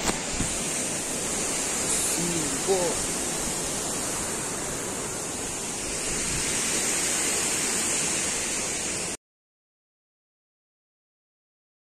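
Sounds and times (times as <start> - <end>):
steady outdoor rushing noise: 0.0 - 9.2.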